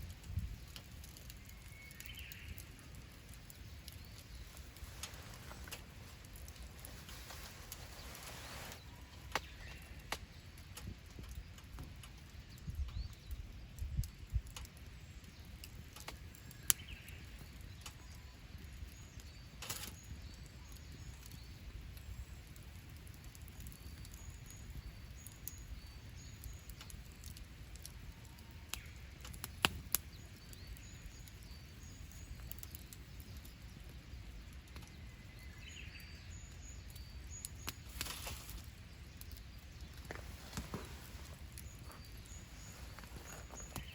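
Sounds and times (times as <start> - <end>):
campfire crackling and popping: 0.0 - 43.9
bird chirps: 34.9 - 43.9.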